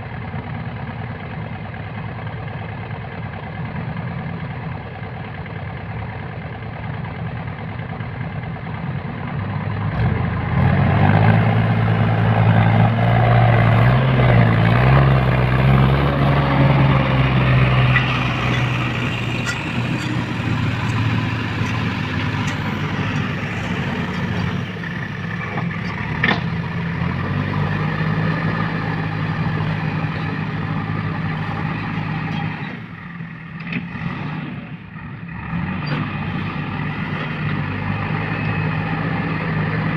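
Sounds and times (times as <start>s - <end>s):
heavy diesel engine revving: 9.4s - 39.9s.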